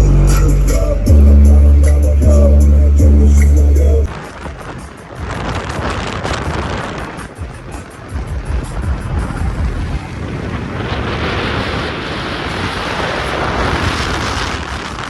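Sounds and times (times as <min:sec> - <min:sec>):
vehicle low rumble: 0:00.0 - 0:04.6, 0:07.4 - 0:12.3
wind rushing on microphone: 0:04.0 - 0:15.0.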